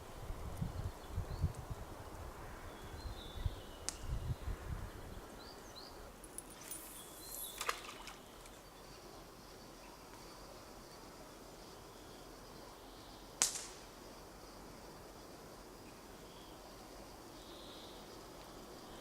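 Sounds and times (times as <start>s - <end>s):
small birds chirping: 2.6s - 9.1s.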